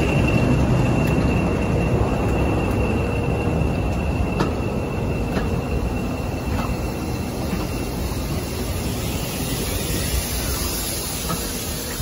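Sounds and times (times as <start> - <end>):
rail joint clicks: 0.0 - 12.0
train wheels rumbling on rails: 0.0 - 12.0.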